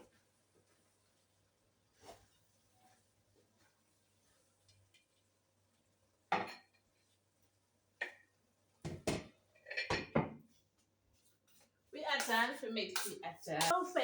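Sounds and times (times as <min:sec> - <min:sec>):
pots and utensils clanking: 0:08.9 - 0:10.3.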